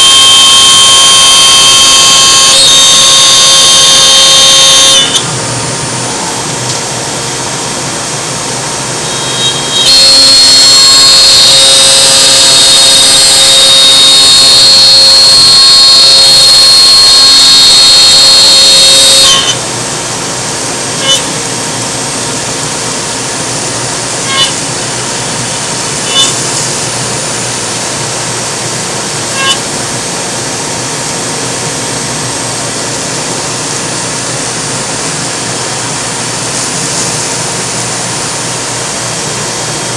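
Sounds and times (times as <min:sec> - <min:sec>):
cnc router running: 0:00.0 - 0:39.9
high-pitched cutting sound: 0:21.0 - 0:21.3, 0:24.2 - 0:24.7, 0:26.0 - 0:26.4.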